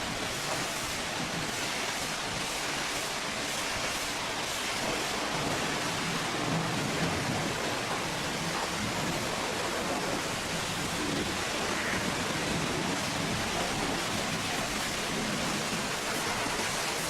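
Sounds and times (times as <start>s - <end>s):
pressure washer spraying water: 11.6s - 17.0s.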